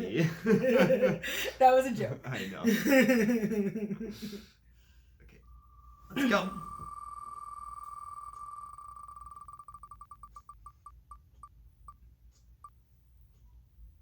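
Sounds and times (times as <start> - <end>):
rapid electronic beeps: 5.4 - 11.5.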